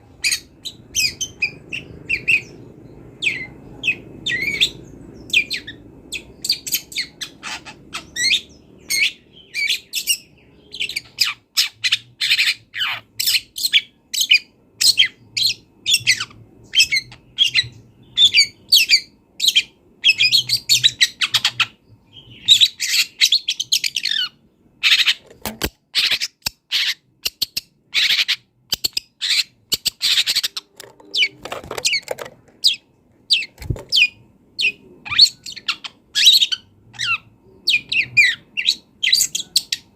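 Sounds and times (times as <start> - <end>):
shrike singing varied song: 0.2 - 25.2.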